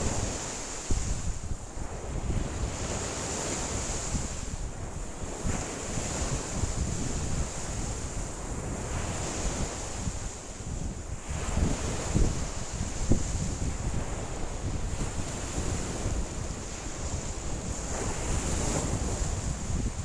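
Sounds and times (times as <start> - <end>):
wind buffeting microphone: 0.0 - 20.0
waves washing against shore: 11.2 - 20.0.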